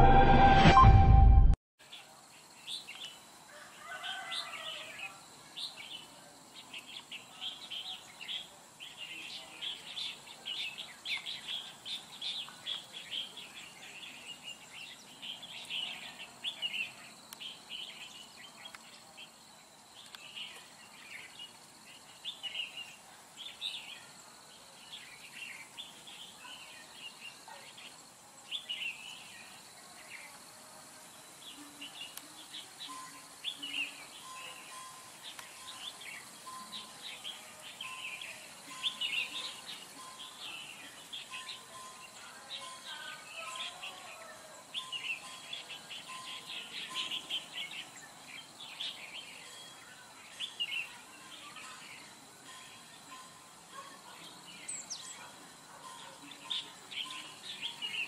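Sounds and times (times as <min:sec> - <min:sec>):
faint steady high tone: 0:31.5 - 0:48.3, 0:49.0 - 0:58.0.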